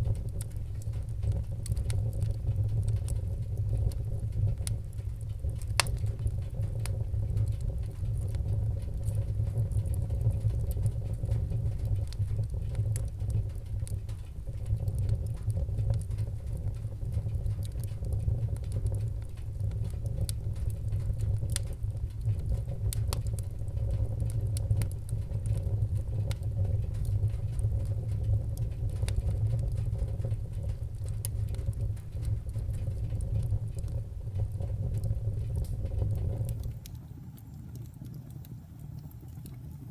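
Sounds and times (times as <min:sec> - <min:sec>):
burning wood crackling and popping: 0:00.0 - 0:39.9
fire burning with low rumble: 0:00.0 - 0:39.9.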